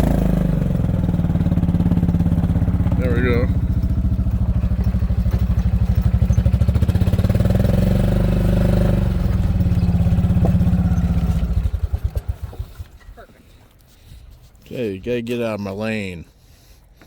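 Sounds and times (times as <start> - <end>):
vehicle engine revving: 0.0 - 13.0.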